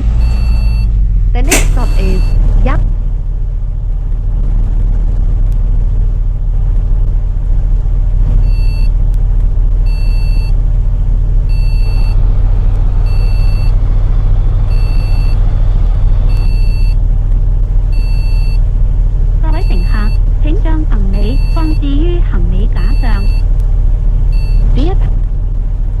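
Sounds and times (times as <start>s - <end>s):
bus engine and road rumble: 0.0s - 26.0s
high electronic warning beep: 1.4s - 2.4s, 13.0s - 13.8s, 16.3s - 17.0s, 19.5s - 20.2s, 21.1s - 22.0s, 22.7s - 23.5s.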